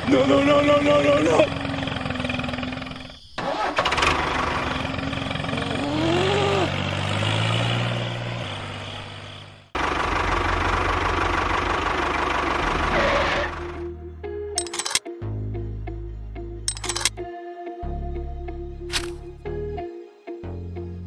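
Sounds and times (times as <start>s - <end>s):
tractor engine running: 0.0s - 13.7s, 14.6s - 15.0s, 16.7s - 17.2s
low engine hum: 4.1s - 12.9s.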